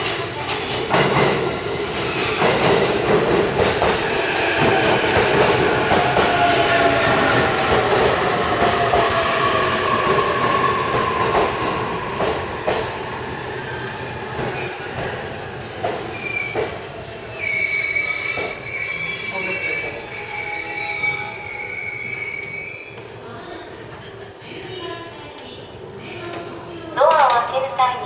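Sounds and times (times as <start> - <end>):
high-pitched wheel squeal: 16.2 - 23.0.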